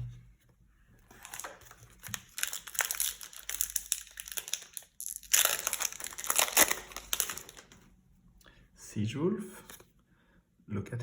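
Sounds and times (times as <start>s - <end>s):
plastic wrapper crinkling: 1.0s - 7.9s.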